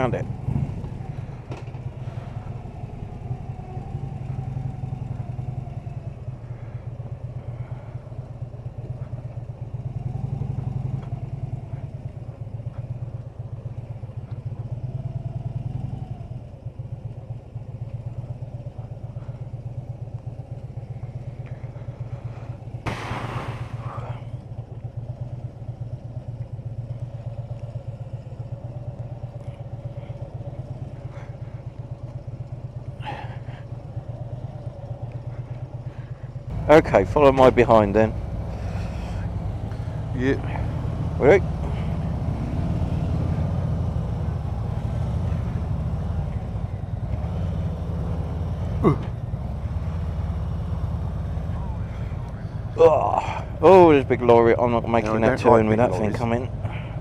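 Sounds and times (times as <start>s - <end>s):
motorcycle engine droning: 0.0s - 57.0s
loud noisy burst: 22.9s - 24.0s.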